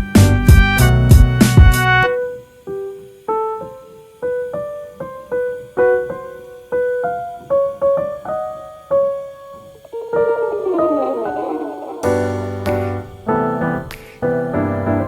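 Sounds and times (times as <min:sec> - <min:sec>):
slow piano melody: 0:06.4 - 0:15.0.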